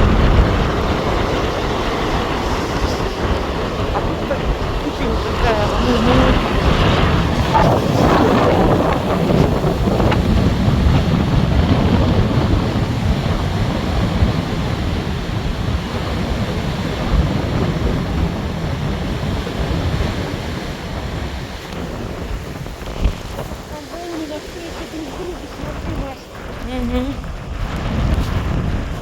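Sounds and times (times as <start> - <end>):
surf breaking on shore: 0.0 - 29.0
wind buffeting microphone: 0.0 - 29.0.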